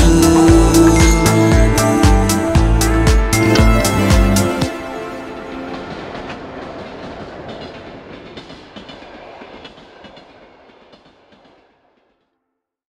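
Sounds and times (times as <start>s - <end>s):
train carriages rumbling past: 0.0s - 12.2s
wheels clicking: 5.2s - 12.0s.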